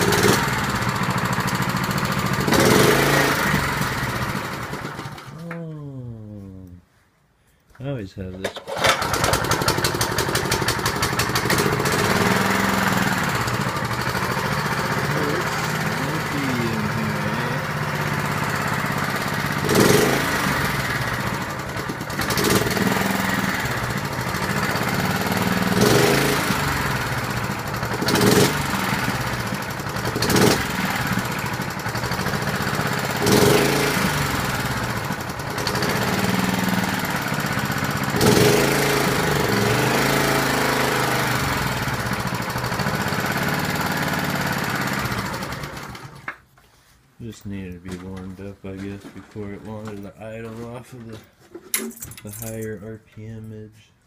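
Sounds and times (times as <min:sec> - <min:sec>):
lawn mower engine revving: 0:00.0 - 0:05.5, 0:08.6 - 0:46.4.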